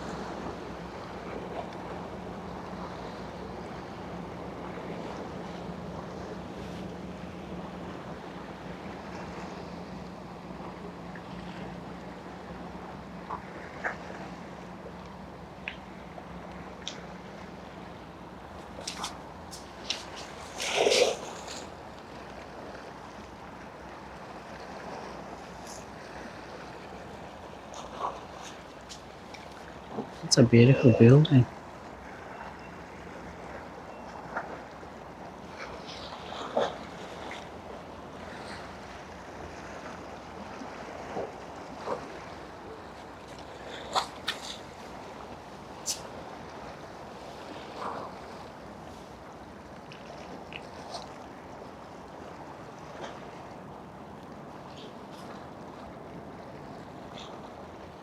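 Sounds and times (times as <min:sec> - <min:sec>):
boat engine humming: 0:00.0 - 0:58.0
harbour water: 0:00.0 - 0:58.0
wind: 0:00.0 - 0:58.0.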